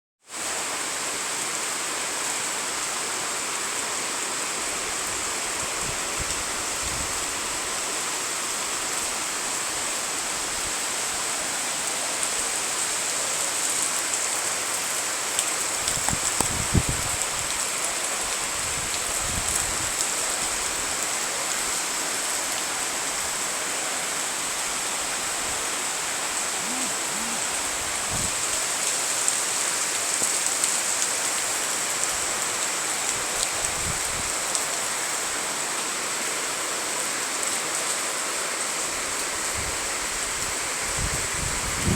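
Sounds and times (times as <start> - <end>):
heavy rain pouring: 0.3 - 41.9.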